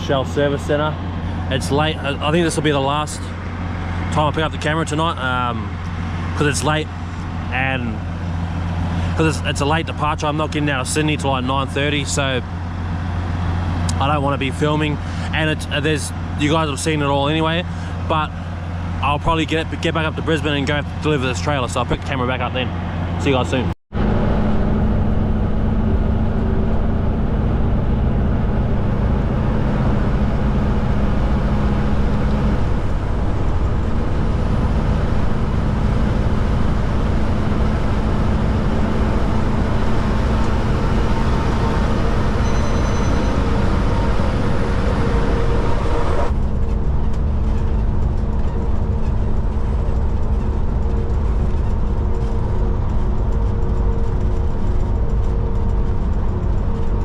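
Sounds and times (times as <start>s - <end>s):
diesel truck engine drone: 0.0s - 57.0s
road noise: 0.0s - 57.0s.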